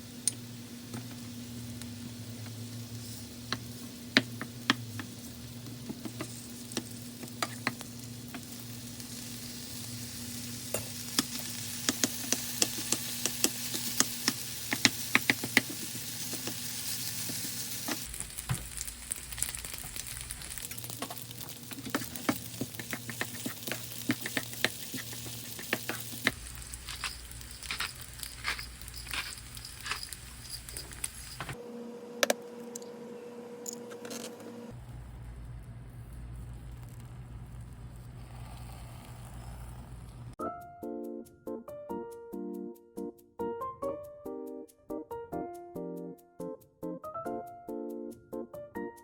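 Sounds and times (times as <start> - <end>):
rice sizzling in a frying pan: 0.0 - 31.6.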